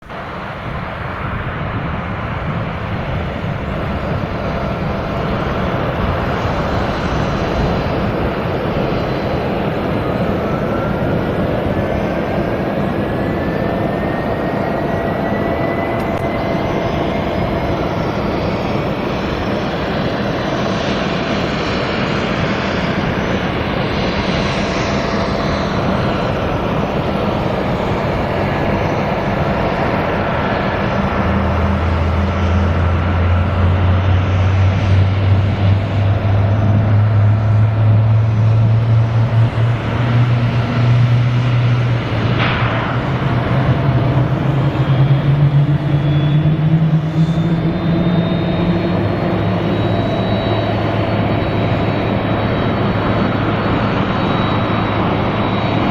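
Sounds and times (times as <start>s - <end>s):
jet engines running: 0.0s - 55.9s
thin engine whine rising: 24.8s - 55.9s.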